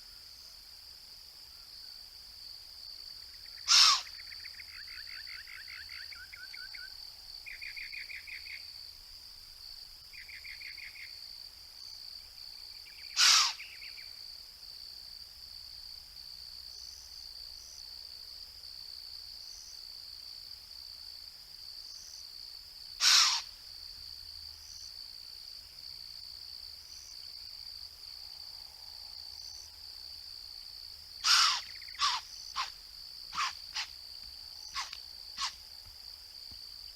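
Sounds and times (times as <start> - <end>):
insect trills: 2.8 - 8.9, 9.7 - 14.4, 22.9 - 25.1, 25.8 - 36.9
high-pitched insect drone: 31.2 - 32.7, 33.3 - 33.9, 34.6 - 35.6.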